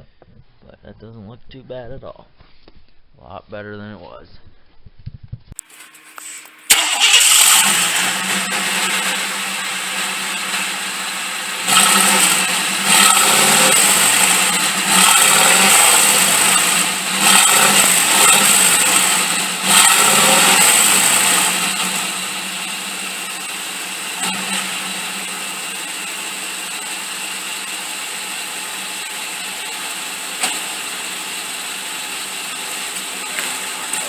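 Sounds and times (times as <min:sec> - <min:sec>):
pickup engine idling and revving: 0:06.7 - 0:34.0.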